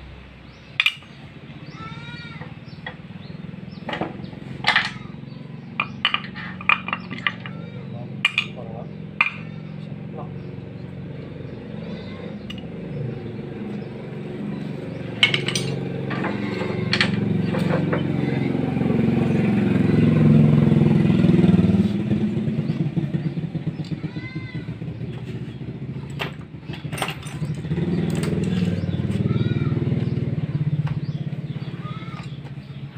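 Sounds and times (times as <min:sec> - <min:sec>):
small engine running: 0:01.8 - 0:32.9.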